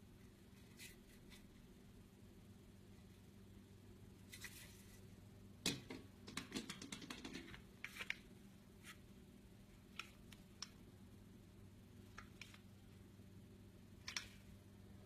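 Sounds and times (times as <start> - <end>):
faint steady hum: 0.0 - 15.0
small sharp clicks and taps: 14.0 - 14.4.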